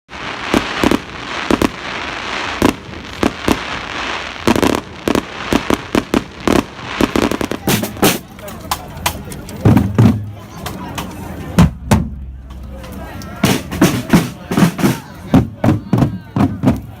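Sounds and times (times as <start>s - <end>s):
fireworks bangs and crackling: 0.1s - 17.0s.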